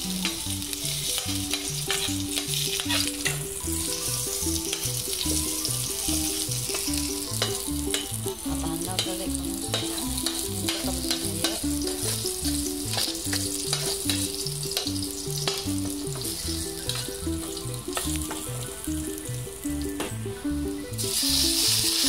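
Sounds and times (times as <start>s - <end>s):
background music: 0.0s - 22.0s
chicken skin sizzling in oil: 0.0s - 22.0s
metal spatula scraping pan: 0.8s - 5.0s, 9.0s - 15.6s.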